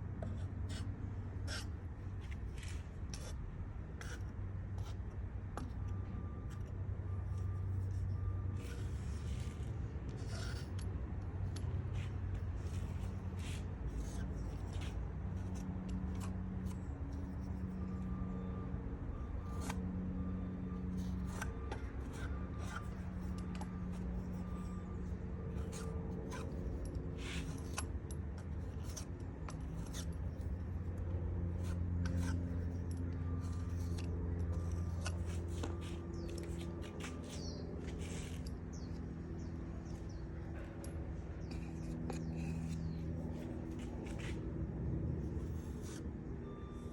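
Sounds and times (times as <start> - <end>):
steady low hum: 0.0 - 46.9
putty knife scraping wood: 1.5 - 3.3, 8.6 - 10.8, 20.6 - 44.4.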